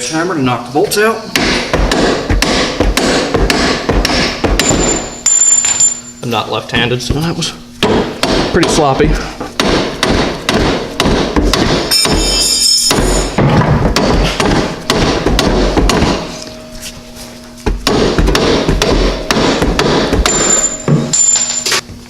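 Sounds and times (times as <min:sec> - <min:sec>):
hammer striking bolts: 0:09.6 - 0:16.3, 0:17.8 - 0:21.8.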